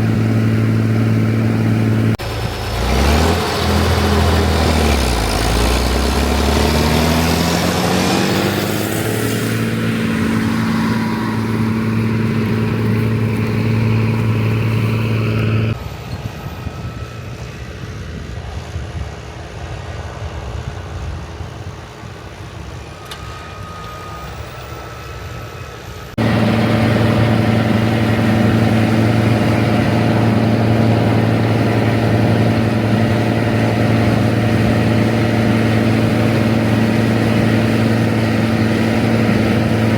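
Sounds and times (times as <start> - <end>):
diesel engine running: 0.0 - 17.8, 23.1 - 39.9.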